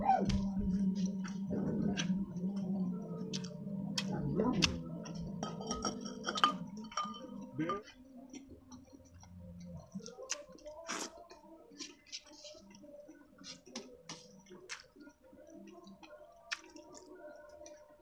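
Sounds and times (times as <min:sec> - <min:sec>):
wet chewing and lip smacks: 0:13.4 - 0:17.8.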